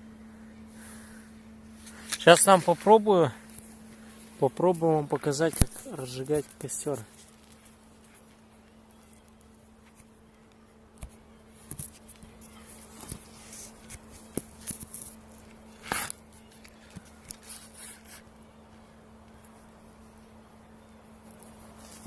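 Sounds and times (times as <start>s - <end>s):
dry twigs snapping and rustling: 1.8s - 18.2s.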